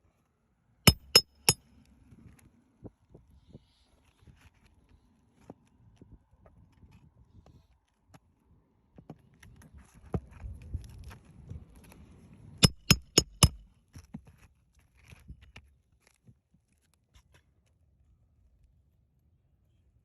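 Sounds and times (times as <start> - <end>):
hammer blows on a nail: 0.9 - 1.6, 12.6 - 13.6
tool handling clicks: 0.9 - 1.6, 12.6 - 13.6.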